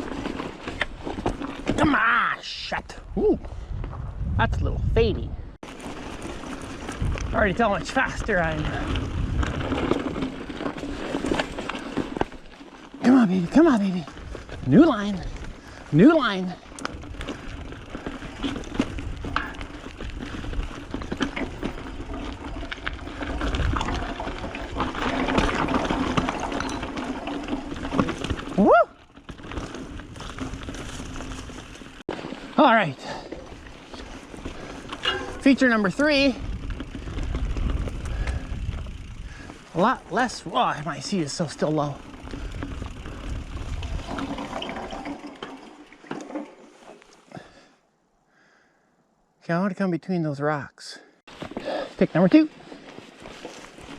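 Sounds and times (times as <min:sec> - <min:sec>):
bike knocking and rattling: 0:00.0 - 0:02.1, 0:05.6 - 0:47.6, 0:51.3 - 0:53.9
tyre and wind noise: 0:00.0 - 0:47.6, 0:51.3 - 0:53.9
wind on microphone: 0:03.0 - 0:05.6, 0:08.1 - 0:10.2, 0:36.4 - 0:39.5, 0:42.3 - 0:44.6
person shouting woo: 0:28.6 - 0:29.0.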